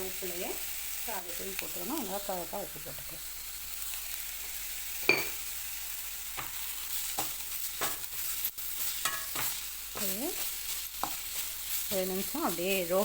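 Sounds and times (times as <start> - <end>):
oil sizzling: 0.0 - 13.0
spatula scraping a pan: 6.3 - 13.0.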